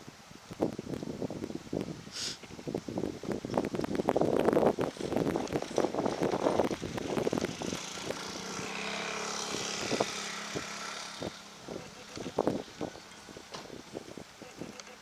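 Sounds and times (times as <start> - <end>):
wind buffeting microphone: 0.0 - 15.0
turboprop plane passing: 4.4 - 14.3.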